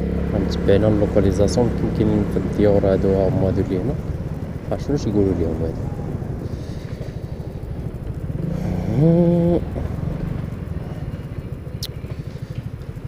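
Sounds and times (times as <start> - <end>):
small motorcycle engine puttering: 0.0 - 13.0
buzzing tone swooping up: 3.0 - 11.8.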